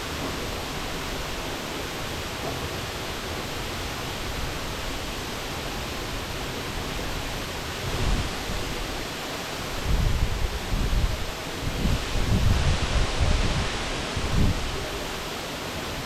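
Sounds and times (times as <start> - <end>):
waterfall rushing: 0.0 - 16.0
wind buffeting microphone: 9.8 - 15.0.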